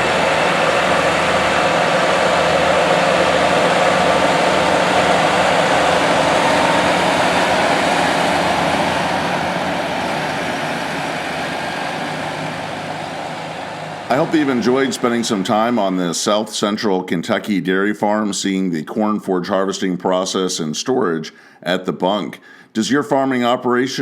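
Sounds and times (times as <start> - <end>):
heavy diesel engine running: 0.0 - 16.1.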